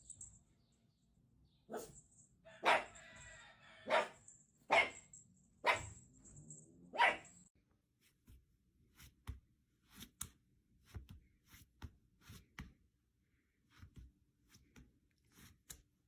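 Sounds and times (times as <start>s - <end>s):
dog barking: 1.7s - 6.1s, 6.8s - 7.5s.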